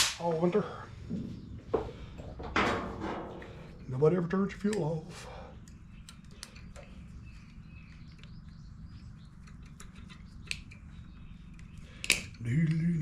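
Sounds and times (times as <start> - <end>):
man humming a tune: 12.4 - 13.0.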